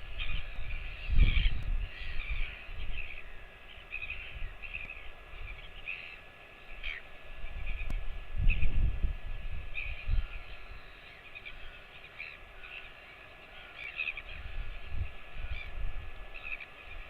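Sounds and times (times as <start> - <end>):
short bird calls: 9.7 - 17.0.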